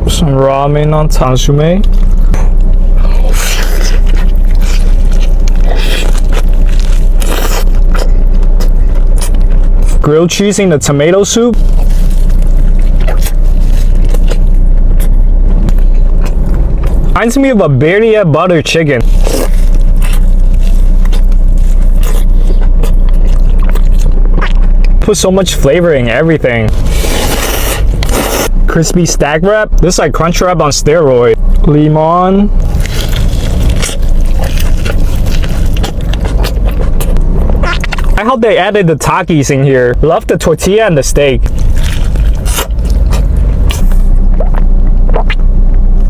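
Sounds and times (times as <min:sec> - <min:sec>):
low rumble: 0:00.0 - 0:46.0
steady low hum: 0:00.0 - 0:46.0
person biting and chewing: 0:01.8 - 0:10.1, 0:11.6 - 0:17.2, 0:19.0 - 0:25.0, 0:26.7 - 0:28.6, 0:32.6 - 0:38.2, 0:41.4 - 0:45.9.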